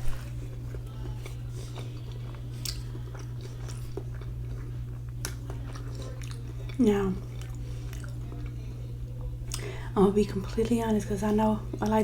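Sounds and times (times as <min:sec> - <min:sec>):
steady low hum: 0:00.0 - 0:12.0
close chewing: 0:00.1 - 0:08.8.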